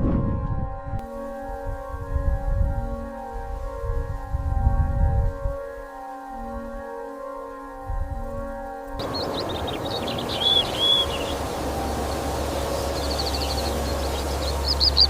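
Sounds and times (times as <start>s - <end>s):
soft ambient music: 0.0s - 15.0s
steady outdoor hiss: 8.7s - 15.0s
small birds chirping: 9.0s - 15.0s
whistled notes: 9.0s - 15.0s.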